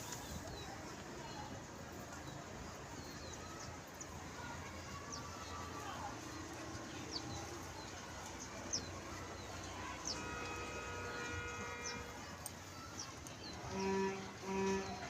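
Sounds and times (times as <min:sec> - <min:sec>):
birds chirping: 0:02.2 - 0:15.0
distant steady tone: 0:08.7 - 0:15.0.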